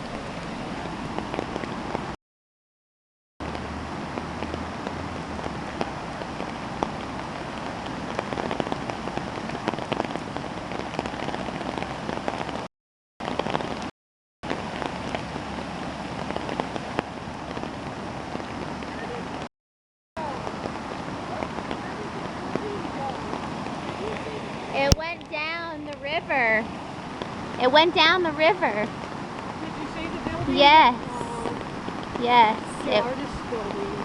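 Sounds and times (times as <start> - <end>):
rushing water with splashes: 0.0 - 2.2, 3.4 - 19.5, 20.2 - 34.0.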